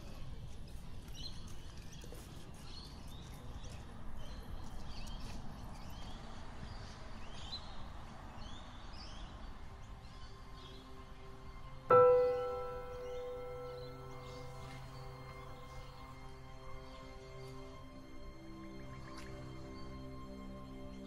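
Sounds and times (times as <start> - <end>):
low outdoor hum: 0.0 - 21.0
birds chirping: 1.0 - 17.7.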